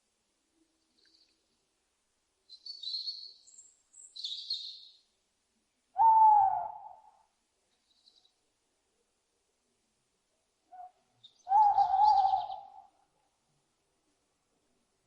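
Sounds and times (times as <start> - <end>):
owl screeching: 6.0 - 7.0, 11.5 - 12.8
owl hooting: 6.0 - 7.2, 10.7 - 13.0.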